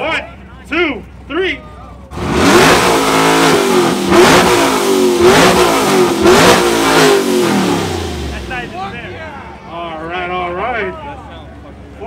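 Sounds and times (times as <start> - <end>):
car engines revving hard: 2.1 - 9.3.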